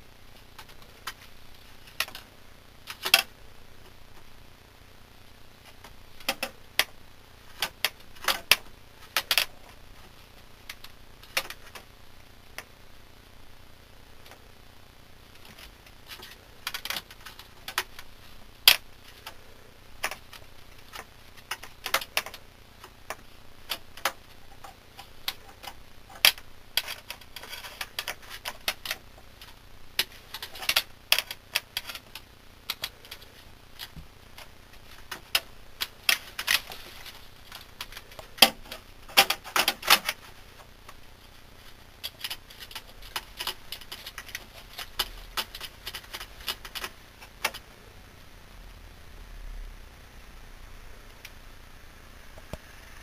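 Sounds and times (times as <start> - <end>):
small hard objects clicking: 15.4 - 41.0.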